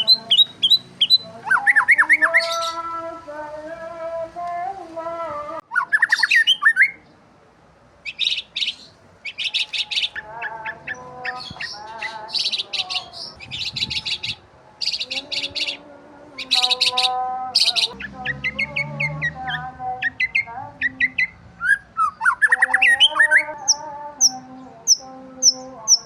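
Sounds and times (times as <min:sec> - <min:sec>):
birds chirping: 0:00.0 - 0:07.3, 0:08.0 - 0:26.0.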